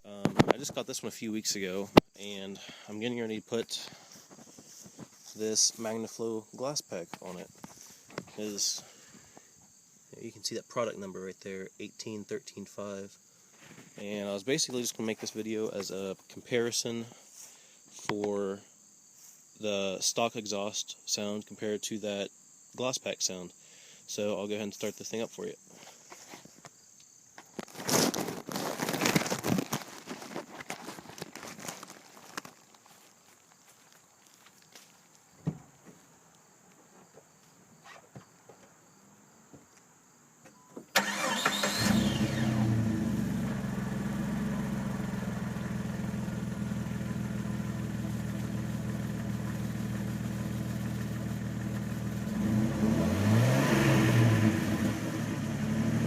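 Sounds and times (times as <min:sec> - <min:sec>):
knocks and rustling: 0:35.4 - 0:36.1
car engine starting and idling: 0:40.9 - 0:56.0.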